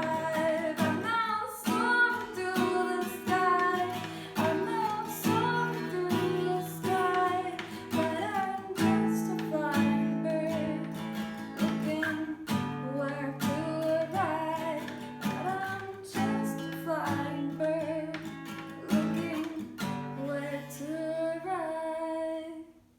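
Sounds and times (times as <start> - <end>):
person singing: 0.0 - 11.0, 11.6 - 22.7
acoustic guitar strumming chords: 0.0 - 20.2.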